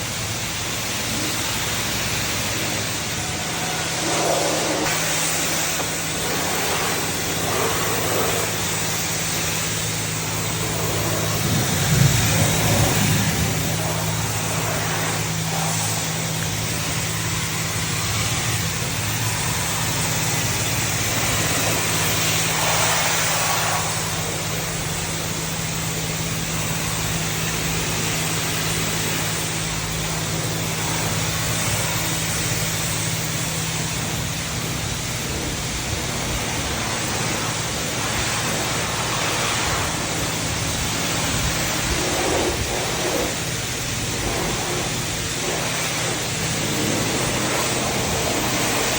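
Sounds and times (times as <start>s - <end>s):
constant low hum: 0.0s - 48.9s
water spray hissing: 0.1s - 24.4s, 34.7s - 48.9s.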